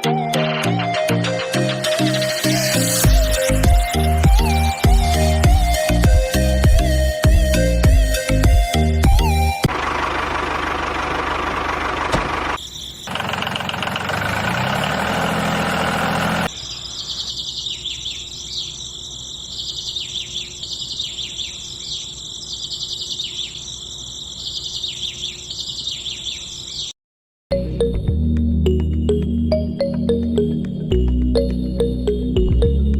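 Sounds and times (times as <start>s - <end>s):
high bird-like chirps: 16.5s - 27.0s.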